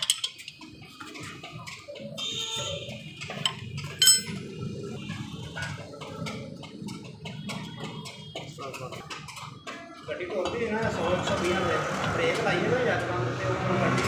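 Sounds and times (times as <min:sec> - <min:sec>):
metal tools clinking: 0:00.0 - 0:00.6, 0:03.4 - 0:04.4
ringing metallic clang: 0:03.9 - 0:04.4.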